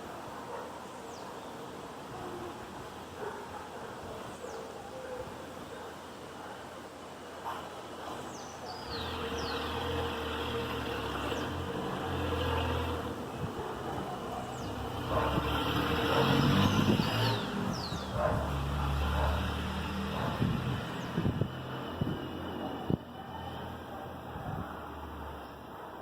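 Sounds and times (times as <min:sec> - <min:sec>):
passing vehicles rumbling: 0:08.9 - 0:25.9.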